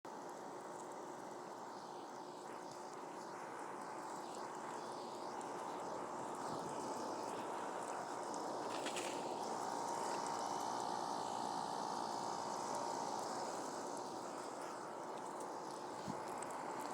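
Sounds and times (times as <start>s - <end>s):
air conditioner whirring hum: 0.1s - 16.9s.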